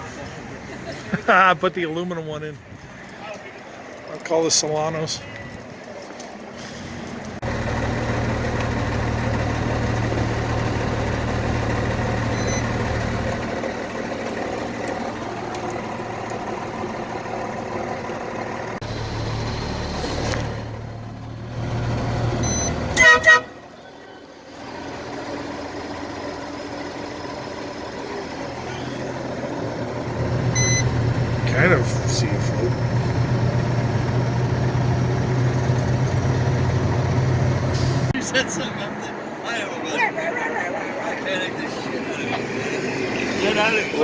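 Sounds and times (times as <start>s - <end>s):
diesel truck engine running: 0.0s - 44.0s
vehicle horn toots: 22.5s - 24.2s.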